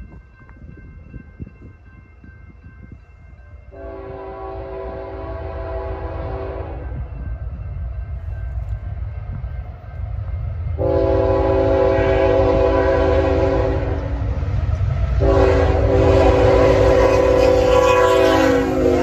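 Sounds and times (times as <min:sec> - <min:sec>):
low rumble of train: 0:00.0 - 0:19.0
locomotive horn blast: 0:03.7 - 0:07.0, 0:10.8 - 0:14.4, 0:15.2 - 0:19.0.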